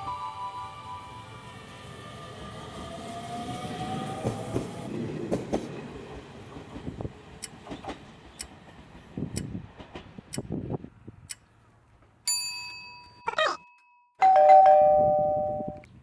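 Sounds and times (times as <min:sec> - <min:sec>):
train wheels clattering on rails: 0:04.1 - 0:10.6.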